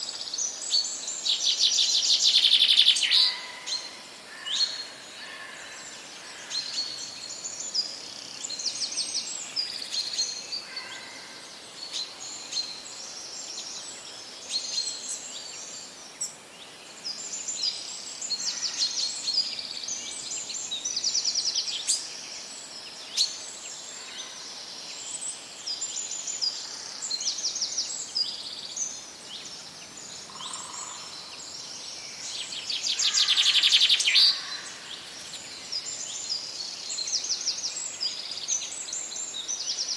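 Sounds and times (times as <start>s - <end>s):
birds chirping and trilling: 0.0s - 39.9s
faint background hiss: 0.0s - 39.9s.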